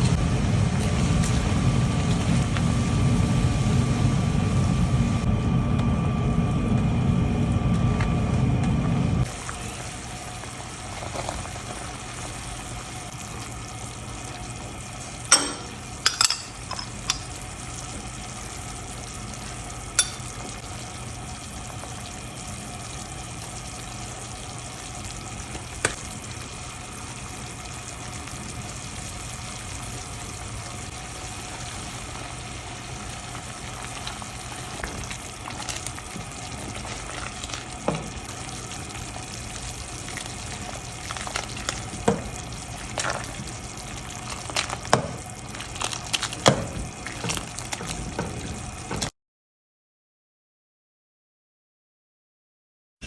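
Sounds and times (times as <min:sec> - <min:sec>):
food sizzling in a pan: 0:09.2 - 0:49.1.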